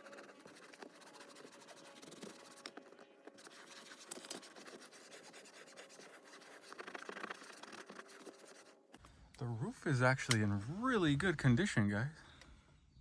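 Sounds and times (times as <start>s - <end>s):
faint scratching and rubbing: 0.0s - 9.0s.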